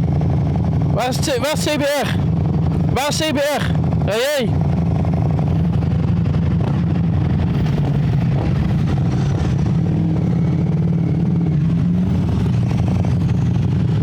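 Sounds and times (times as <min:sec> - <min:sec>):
motorcycle engine running low: 0:00.0 - 0:14.0.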